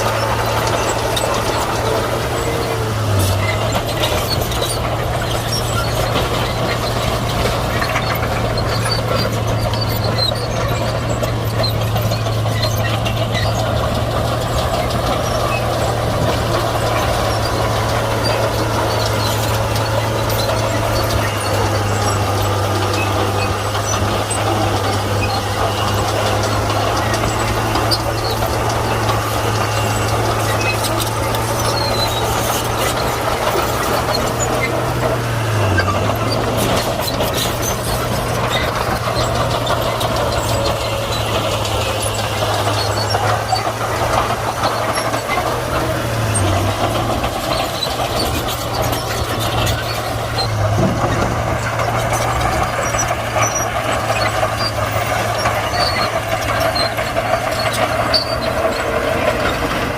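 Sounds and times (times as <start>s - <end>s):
bulldozer diesel engine running: 0.0s - 59.9s
tracks clanking and squealing: 0.0s - 59.9s.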